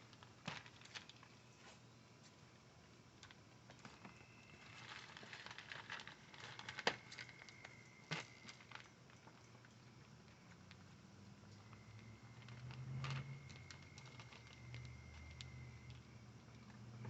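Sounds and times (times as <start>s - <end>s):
puppies pattering and scratching: 3.2s - 15.5s.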